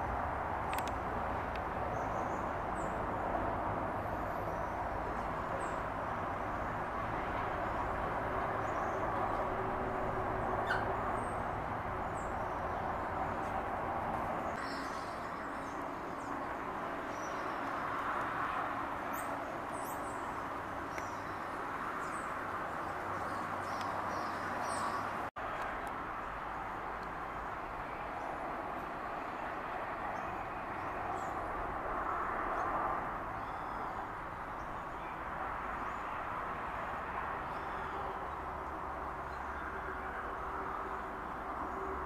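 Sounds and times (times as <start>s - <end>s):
small birds chirping: 19.0s - 25.3s.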